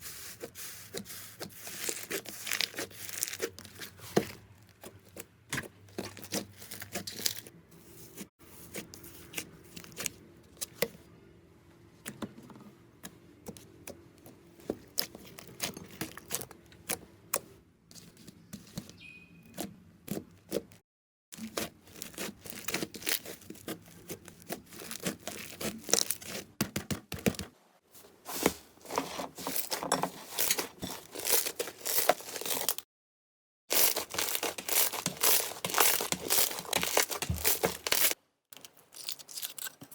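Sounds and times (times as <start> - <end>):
slime crackling and popping: 33.7 - 38.2.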